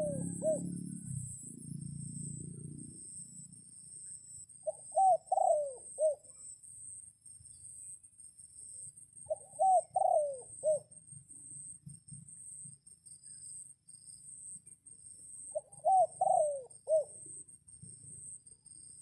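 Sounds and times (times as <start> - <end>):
dove cooing: 0.0 - 1.7, 4.6 - 6.3, 9.3 - 10.9, 15.5 - 17.2.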